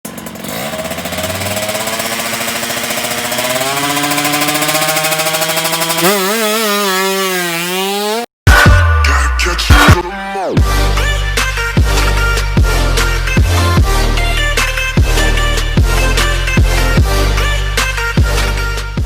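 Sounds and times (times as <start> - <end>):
two-stroke motorcycle engine revving: 0.0 - 8.3.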